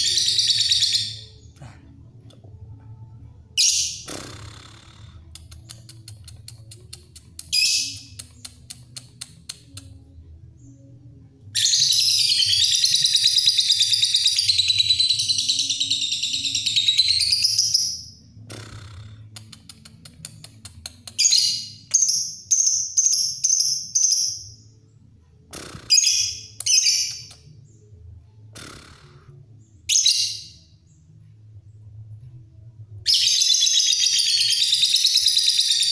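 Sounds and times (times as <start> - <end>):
shrill bird chirps: 0.0 - 1.6, 11.6 - 19.2, 25.6 - 27.9, 28.6 - 30.9, 33.1 - 35.9.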